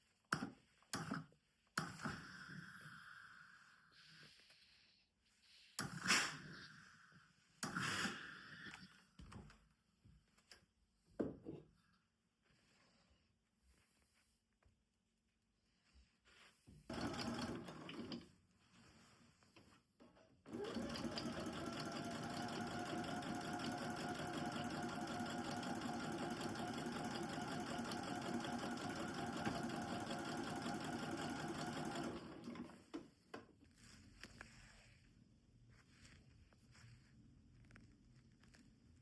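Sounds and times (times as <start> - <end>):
sewing machine stitching: 16.9 - 18.3, 20.5 - 33.1.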